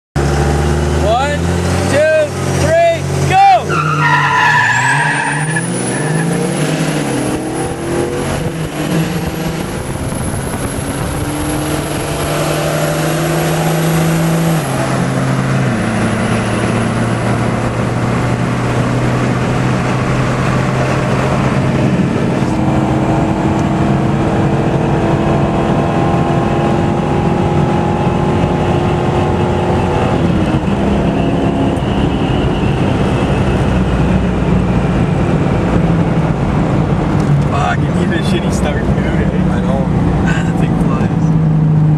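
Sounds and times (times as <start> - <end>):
car engine running hard: 0.2 - 41.9
road and wind noise: 0.2 - 41.9.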